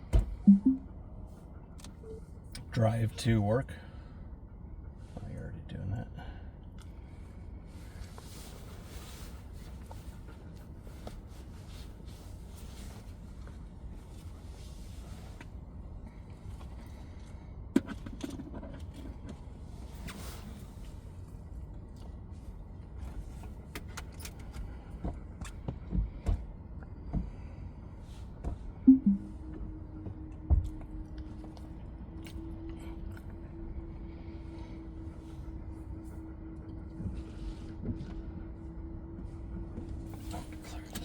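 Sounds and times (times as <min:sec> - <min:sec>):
low steady rumble: 0:00.0 - 0:41.0
knocks and clicks: 0:00.2 - 0:00.8, 0:28.9 - 0:29.2.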